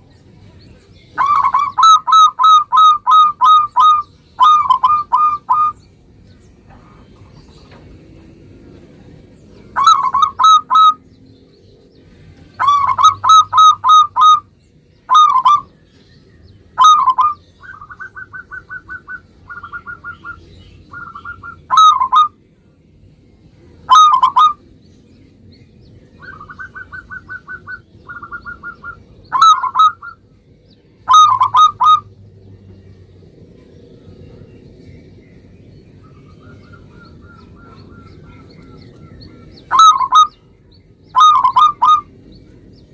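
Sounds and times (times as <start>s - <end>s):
dove cooing: 1.2s - 5.8s, 9.7s - 11.0s, 12.6s - 14.5s, 15.1s - 15.8s, 16.8s - 22.4s, 23.9s - 24.6s, 26.2s - 30.2s, 31.0s - 32.1s, 36.1s - 40.4s, 41.1s - 42.2s.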